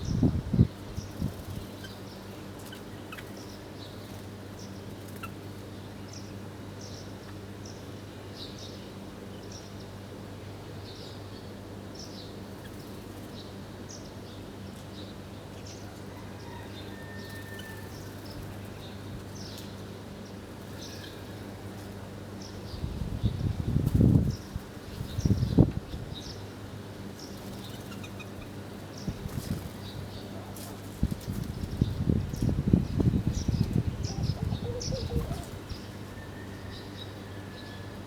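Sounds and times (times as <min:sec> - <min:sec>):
small birds chirping: 0:01.0 - 0:07.8, 0:27.1 - 0:36.0
steady low hum: 0:27.0 - 0:38.0.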